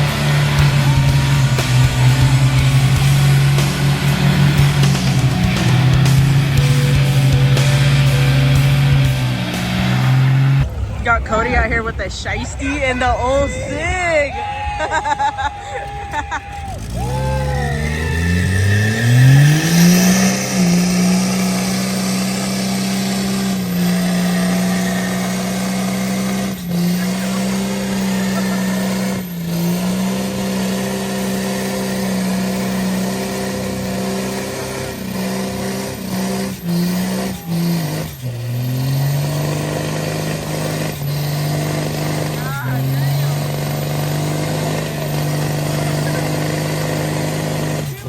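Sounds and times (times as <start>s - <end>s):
vehicle engine revving: 0.0s - 14.0s, 14.7s - 48.0s.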